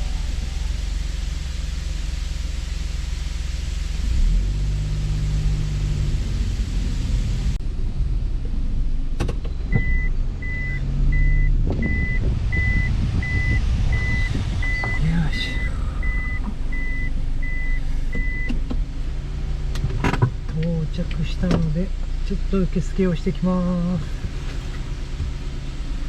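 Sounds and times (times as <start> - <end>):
reverse warning beeper: 0.0 - 1.4, 9.8 - 18.5
car engine hum: 0.0 - 26.0
road noise: 0.0 - 26.0.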